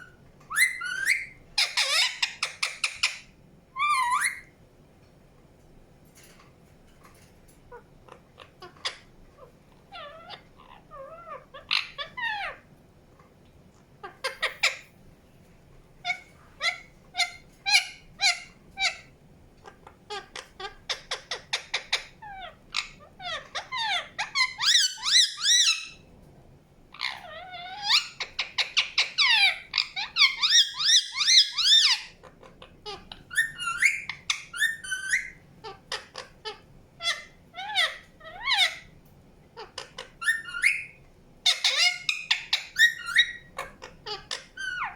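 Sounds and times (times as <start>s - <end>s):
parakeet chirping and warbling: 0.0s - 4.6s, 7.7s - 12.7s, 14.0s - 14.9s, 16.0s - 26.0s, 26.9s - 39.0s, 39.6s - 44.9s.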